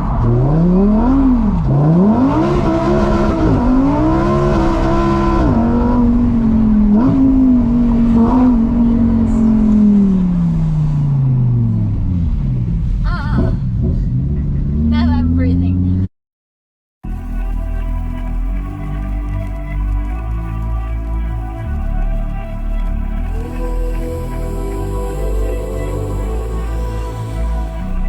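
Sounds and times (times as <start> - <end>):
sports car engine revving: 0.0 - 16.1.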